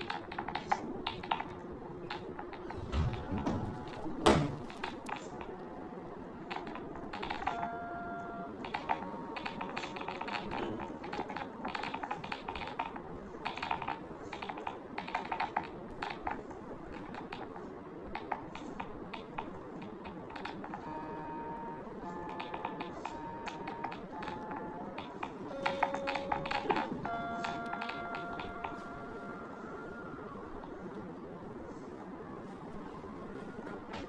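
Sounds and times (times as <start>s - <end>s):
typing on a keyboard: 0.0s - 4.0s, 6.5s - 7.8s, 8.6s - 21.0s, 22.0s - 29.3s.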